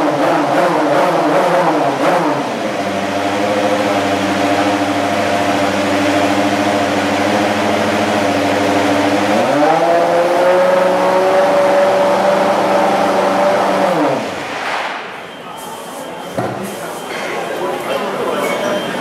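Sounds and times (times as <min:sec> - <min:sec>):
race car engine idling: 0:01.7 - 0:14.4.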